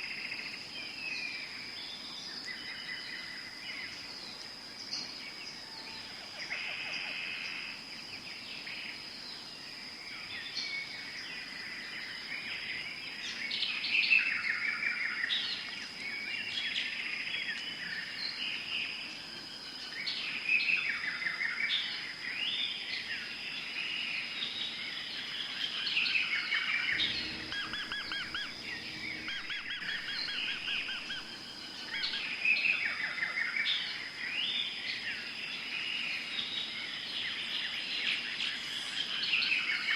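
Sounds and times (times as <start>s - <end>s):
birds chirping and trilling: 0.0s - 39.9s
high-pitched insect drone: 23.0s - 39.9s
low rumble: 26.8s - 32.2s.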